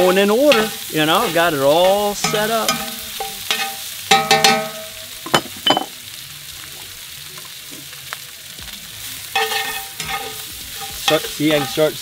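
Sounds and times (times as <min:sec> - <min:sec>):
food sizzling in a skillet: 0:00.0 - 0:12.0
metal tongs scraping a pan: 0:00.2 - 0:05.0, 0:09.3 - 0:12.0.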